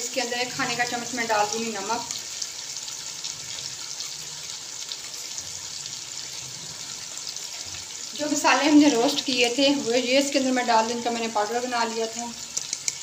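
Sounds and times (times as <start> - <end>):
masala sizzling in hot oil: 0.0 - 13.0.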